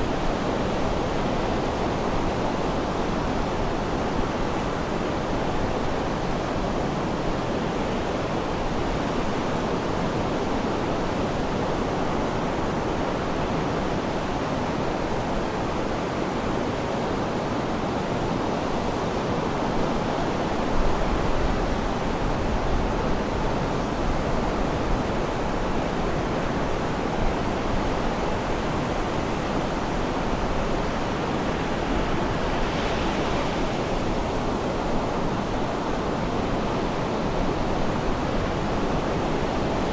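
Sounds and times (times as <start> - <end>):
sea surf washing: 24.7 - 39.9.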